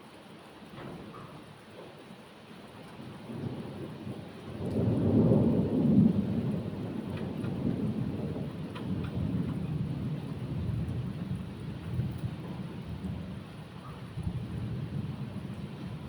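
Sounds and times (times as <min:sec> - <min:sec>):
steady rain: 0:00.0 - 0:16.0
rolling thunder: 0:03.0 - 0:16.0.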